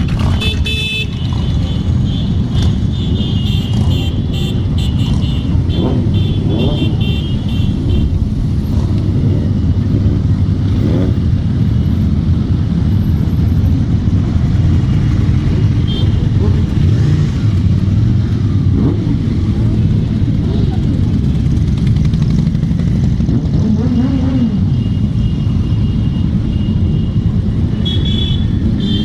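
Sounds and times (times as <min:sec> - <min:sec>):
motorcycle engines revving: 0:00.0 - 0:29.0.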